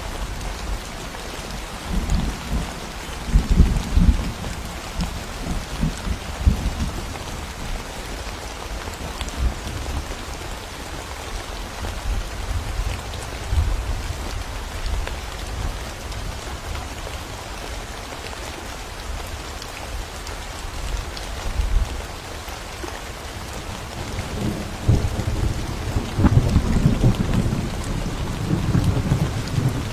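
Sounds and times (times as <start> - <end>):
steady rain falling: 0.0 - 29.9
thunder rumbling: 23.9 - 29.9.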